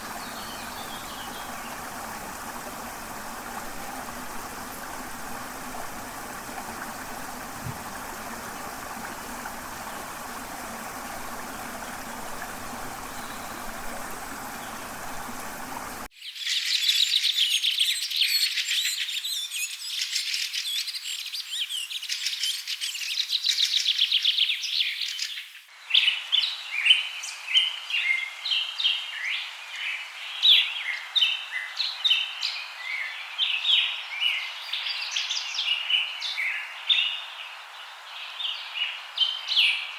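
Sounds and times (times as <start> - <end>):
running water: 0.0 - 16.1
trilling insects: 0.0 - 16.1.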